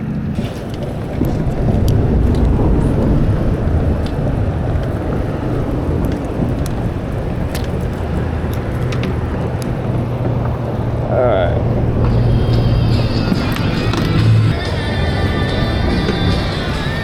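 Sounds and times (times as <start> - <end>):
boat motor rumbling: 0.0 - 17.0
water noise: 0.0 - 17.0
wind: 0.0 - 17.0
faint clicks: 0.4 - 10.7.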